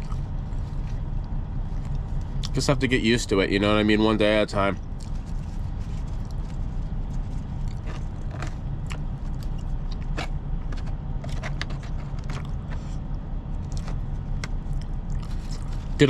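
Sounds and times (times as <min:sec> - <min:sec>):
man chewing: 0:00.0 - 0:02.5, 0:04.9 - 0:16.0
low hum: 0:00.0 - 0:16.0
utensil scraping food container: 0:07.6 - 0:13.0.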